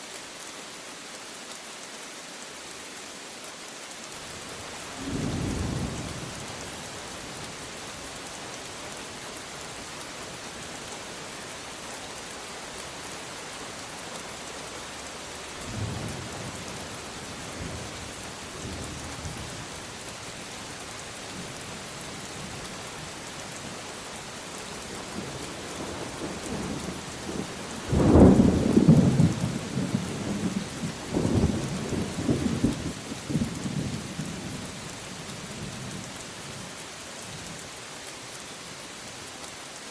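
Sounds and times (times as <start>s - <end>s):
steady rain: 0.0s - 39.9s
thunder rumbling: 26.3s - 34.0s.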